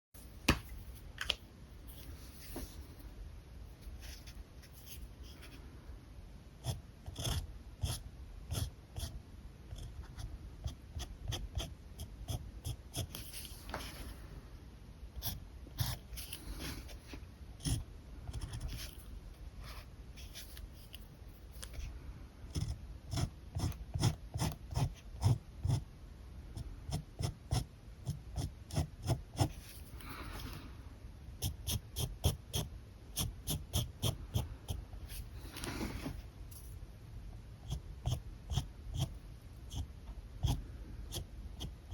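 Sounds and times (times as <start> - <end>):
marker drawing on paper: 31.4 - 36.8, 37.6 - 41.9.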